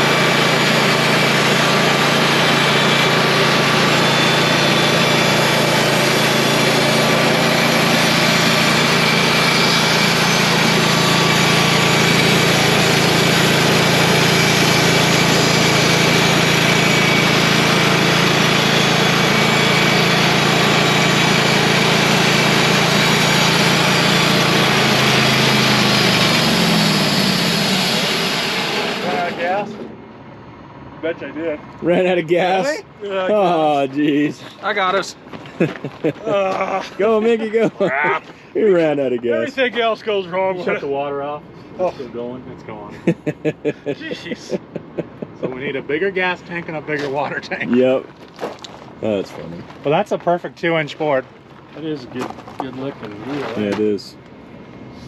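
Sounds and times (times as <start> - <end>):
band blade cutting log: 0.0 - 29.4
sawmill engine running: 0.0 - 55.0.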